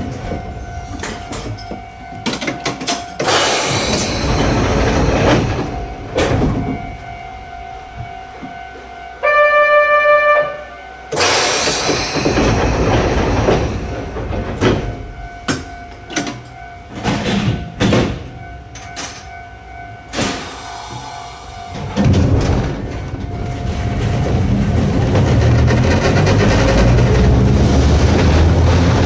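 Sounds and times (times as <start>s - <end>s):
train chime: 0.0s - 25.1s
knocks and clatters: 0.1s - 7.0s, 11.2s - 19.3s, 21.8s - 29.0s
loud rush of noise: 23.6s - 29.0s.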